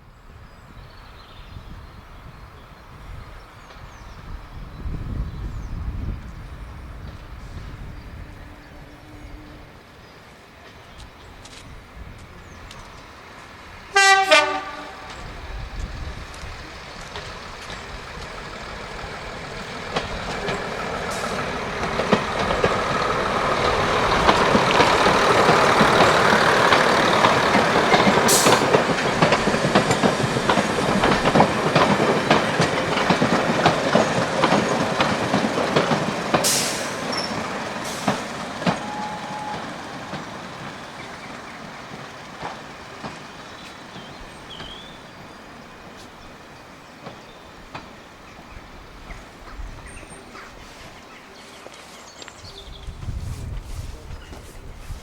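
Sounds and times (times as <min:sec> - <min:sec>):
diesel train passing: 0:00.0 - 0:55.0
wheels clicking over rail joints: 0:15.0 - 0:55.0.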